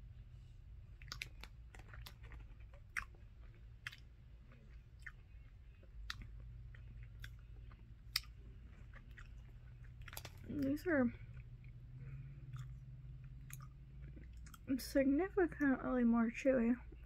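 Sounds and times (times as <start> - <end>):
faint low hum: 0.0 - 17.0
wet mouth chewing clicks: 1.0 - 4.1, 6.0 - 10.4, 12.5 - 14.7.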